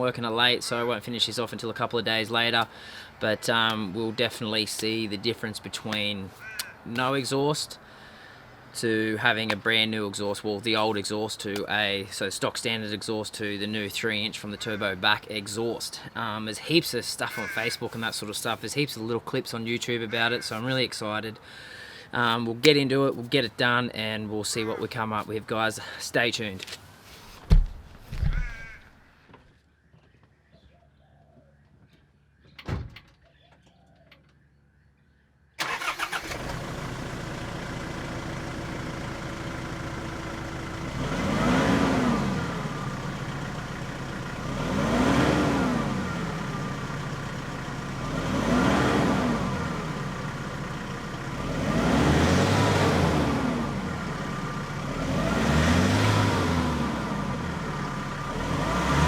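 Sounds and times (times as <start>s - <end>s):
single thump: 27.5s - 28.5s
diesel engine starting and revving: 35.6s - 59.0s.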